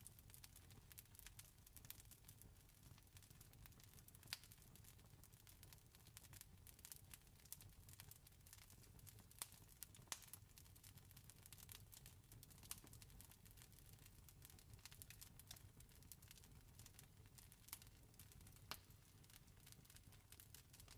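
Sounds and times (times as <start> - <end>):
campfire crackling: 5.5 - 20.9.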